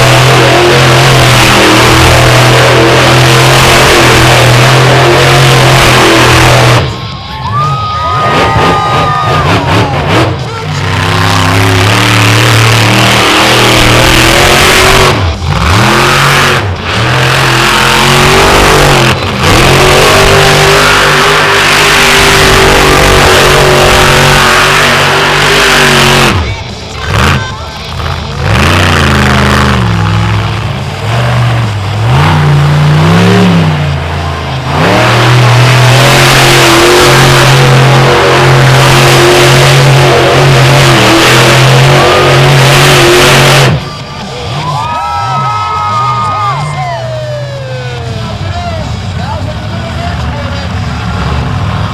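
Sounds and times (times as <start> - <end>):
monster truck engine revving: 0.0 - 51.9.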